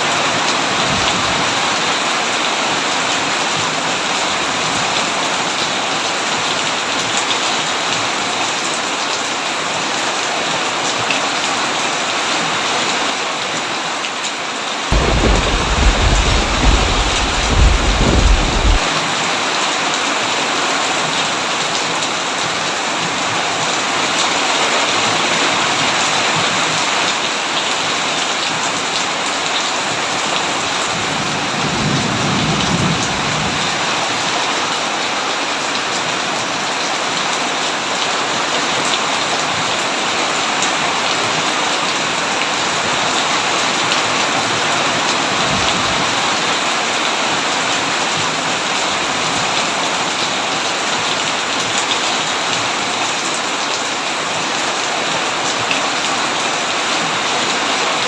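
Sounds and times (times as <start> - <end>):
heavy rain on a tin roof: 0.0 - 58.0
distant thunder rumble: 14.9 - 18.8.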